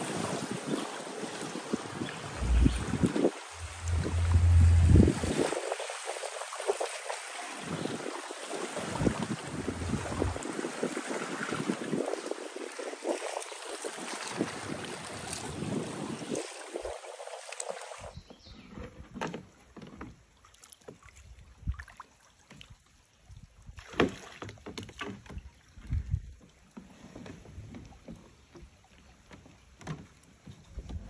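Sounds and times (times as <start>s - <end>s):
wind on microphone: 0.0s - 7.0s, 7.6s - 17.0s
small splashes and knocks in water: 19.1s - 31.0s.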